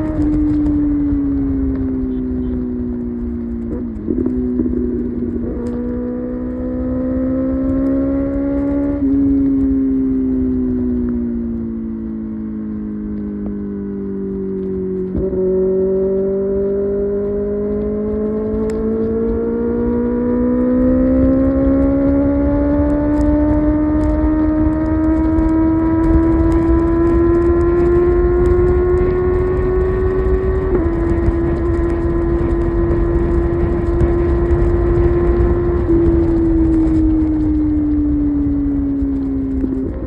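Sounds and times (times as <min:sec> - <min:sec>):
wind rush: 0:14.9 - 0:40.0.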